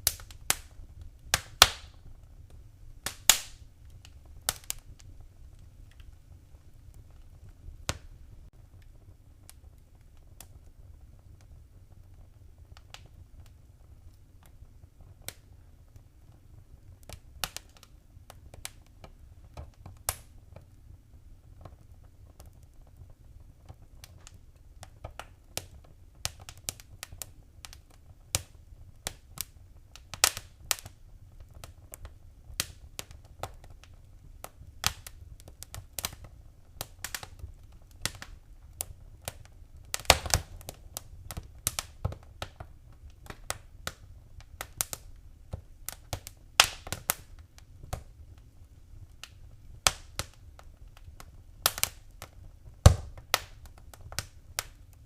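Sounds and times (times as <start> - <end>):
fire crackling and popping: 0.0 - 55.0.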